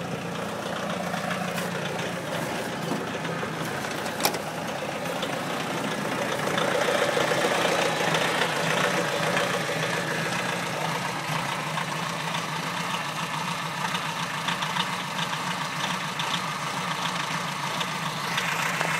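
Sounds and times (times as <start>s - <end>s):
diesel engine idling: 0.0s - 18.9s.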